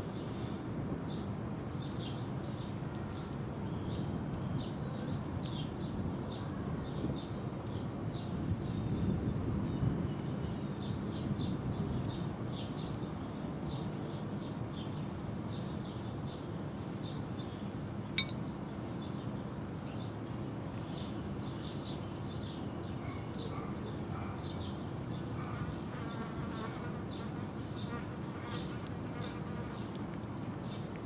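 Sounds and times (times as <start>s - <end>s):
sharp clink: 18.2s - 18.5s
small birds chirping: 20.8s - 31.0s.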